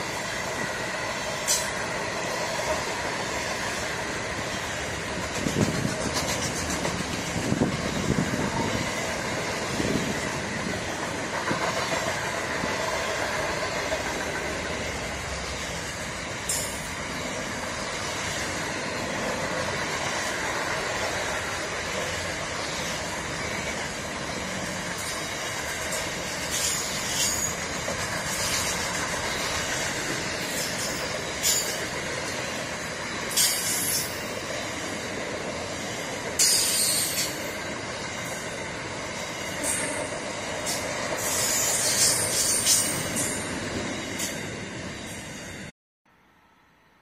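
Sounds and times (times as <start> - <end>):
train wheels rolling on rail: 0.0 - 45.7
high-pitched wheel squeals: 36.4 - 37.4.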